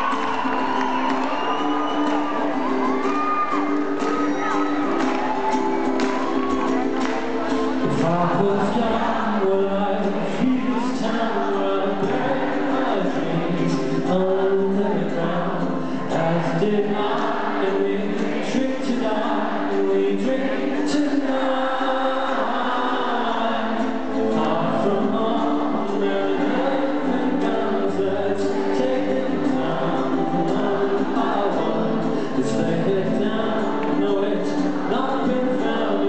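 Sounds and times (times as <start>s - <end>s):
live band playing: 0.0s - 8.3s
voices singing: 0.0s - 36.0s.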